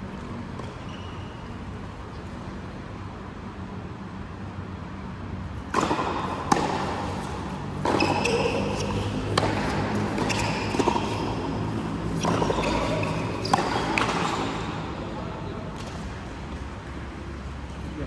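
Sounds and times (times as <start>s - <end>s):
shoes squeaking on court: 0.2s - 2.4s, 5.6s - 17.9s
ball struck with a racket: 5.6s - 14.8s.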